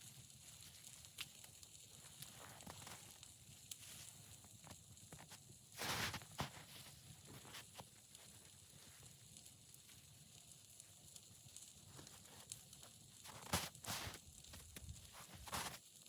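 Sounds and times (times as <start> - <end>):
faint steady hiss: 0.0 - 16.0
footsteps crunching in snow: 5.8 - 7.8, 13.2 - 15.8.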